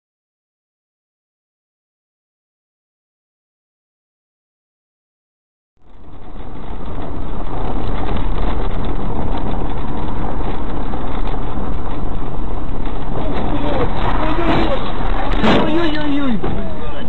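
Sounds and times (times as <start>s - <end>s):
car engine and road noise: 5.8s - 17.0s.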